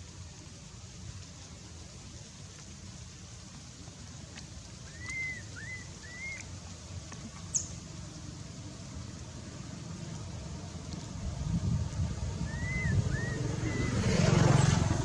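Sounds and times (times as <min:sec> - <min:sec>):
animal calls rising and falling: 0:04.9 - 0:06.5, 0:12.4 - 0:15.0
steady low rumble: 0:07.8 - 0:15.0.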